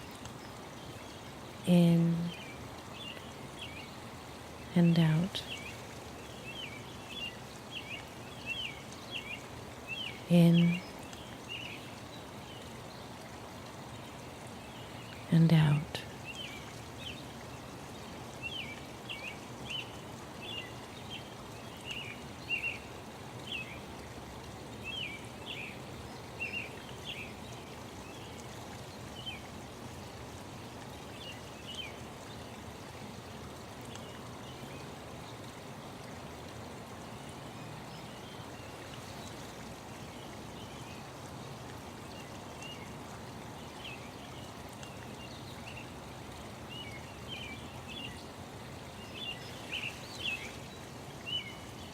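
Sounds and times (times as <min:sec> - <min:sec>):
small birds chirping: 0:46.7 - 0:51.9.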